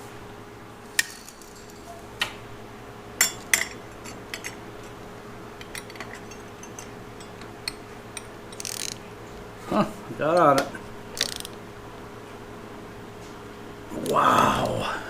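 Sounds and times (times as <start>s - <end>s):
socket wrench clinking on metal: 3.2s - 4.9s, 5.6s - 9.0s.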